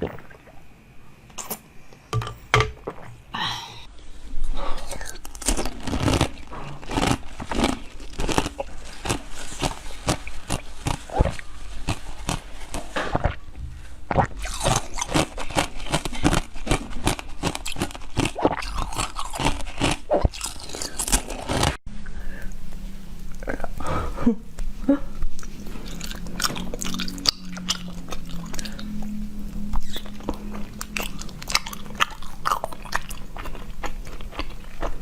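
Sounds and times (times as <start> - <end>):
person chewing frozen treats: 4.7 - 13.5, 14.1 - 21.8, 25.2 - 35.0.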